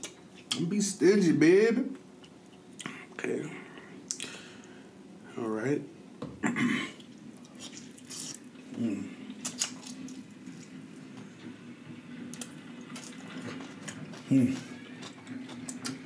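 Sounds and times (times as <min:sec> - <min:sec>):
wet chewing and lip-smacking: 0:07.0 - 0:08.6, 0:09.3 - 0:10.8, 0:12.3 - 0:16.0.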